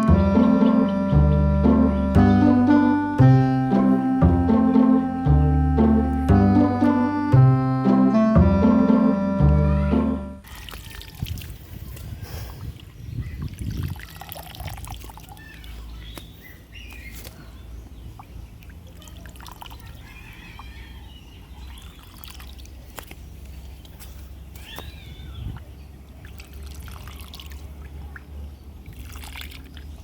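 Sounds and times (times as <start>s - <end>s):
water trickling and pouring: 10.4s - 12.1s, 13.4s - 15.8s, 18.2s - 20.0s, 21.7s - 22.8s, 26.2s - 30.0s
small splashes: 10.4s - 16.3s, 18.0s - 20.7s, 21.6s - 30.0s.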